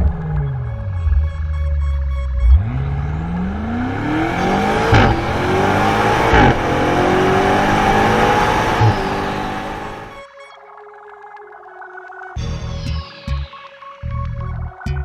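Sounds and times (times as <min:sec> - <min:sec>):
car engine accelerating: 0:00.0 - 0:10.2.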